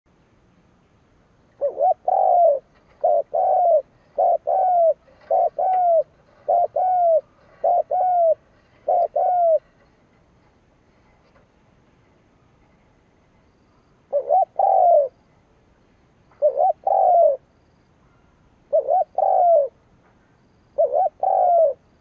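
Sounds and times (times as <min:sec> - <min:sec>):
dove cooing: 0:01.6 - 0:09.8, 0:14.1 - 0:15.2, 0:16.3 - 0:17.5, 0:18.7 - 0:19.8, 0:20.8 - 0:21.9.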